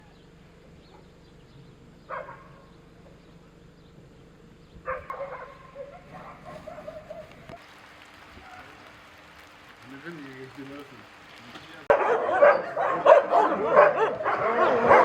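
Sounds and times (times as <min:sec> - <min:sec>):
dog barking: 0:02.1 - 0:02.6, 0:04.8 - 0:07.4, 0:11.9 - 0:15.0.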